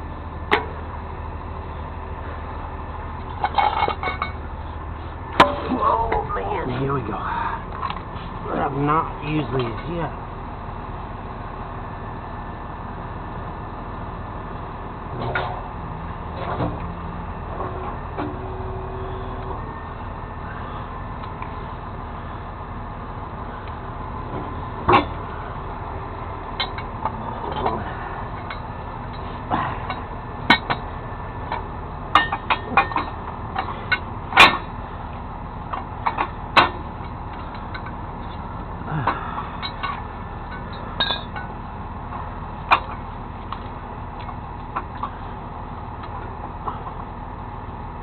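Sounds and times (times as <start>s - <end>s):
truck engine idling: 0.0s - 48.0s
metal clanks: 3.2s - 4.4s, 5.3s - 6.9s, 24.3s - 25.2s, 26.6s - 34.8s, 35.7s - 45.3s.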